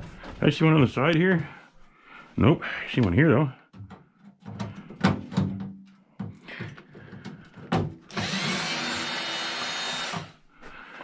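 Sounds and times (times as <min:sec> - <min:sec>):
power drill whining: 0:08.1 - 0:10.4.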